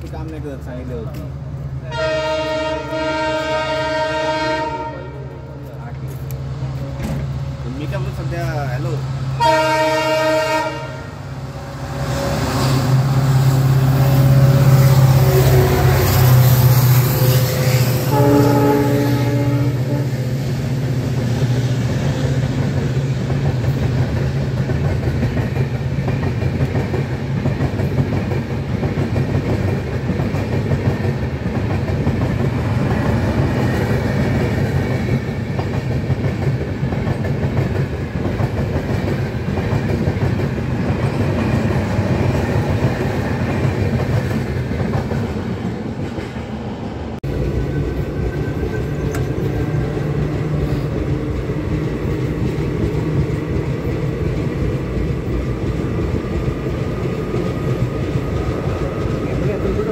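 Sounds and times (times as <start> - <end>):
passing train clattering over rails: 0.0 - 59.9
train horn blast: 1.8 - 5.7, 9.4 - 11.4, 14.2 - 20.4.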